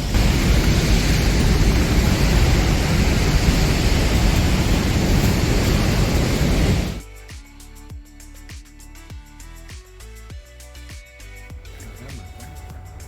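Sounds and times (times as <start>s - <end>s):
waterfall roaring: 0.0s - 7.0s
background music with a beat: 7.0s - 13.0s.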